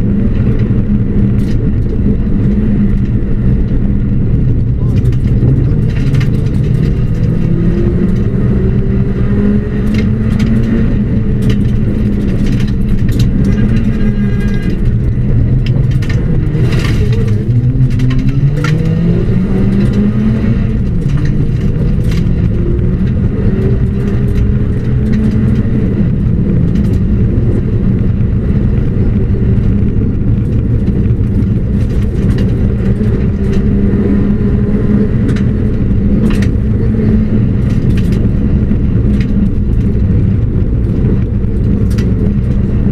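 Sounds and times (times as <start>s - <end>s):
rally car engine revving: 0.0s - 42.9s
sharp clicks and knocks: 0.3s - 42.9s.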